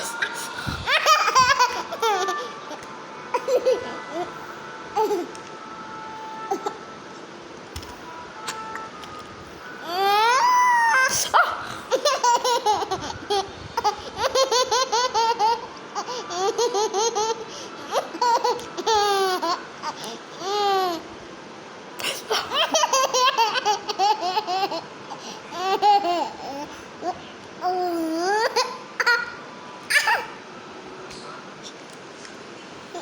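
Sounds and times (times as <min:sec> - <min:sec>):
baby laughing: 0:00.2 - 0:04.3, 0:11.0 - 0:21.0, 0:22.0 - 0:30.3.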